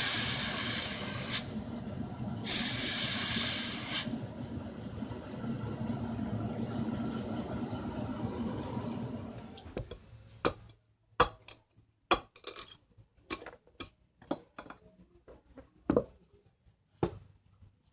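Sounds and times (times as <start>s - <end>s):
machine running: 0.0s - 9.8s
hard objects knocking: 13.2s - 16.2s.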